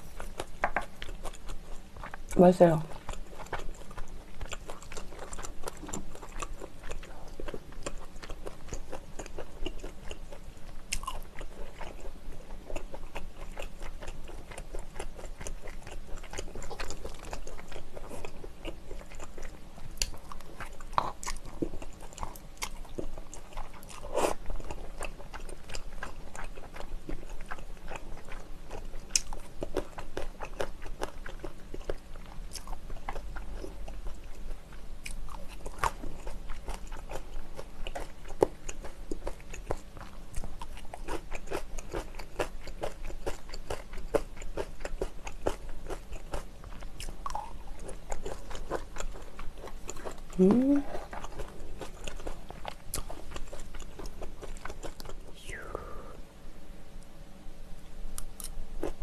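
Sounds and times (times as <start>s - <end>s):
chewing noodles: 0.0s - 55.4s.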